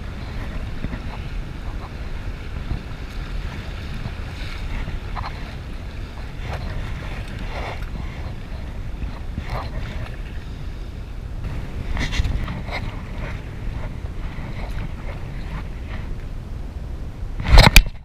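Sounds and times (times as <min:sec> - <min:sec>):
paddle water splashes: 0:00.0 - 0:16.4
wind buffeting microphone: 0:00.0 - 0:18.0.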